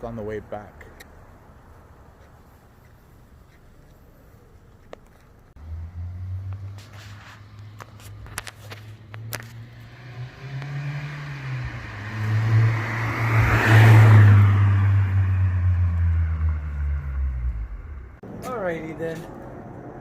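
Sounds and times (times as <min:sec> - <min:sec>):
car driving past: 0:05.6 - 0:18.2.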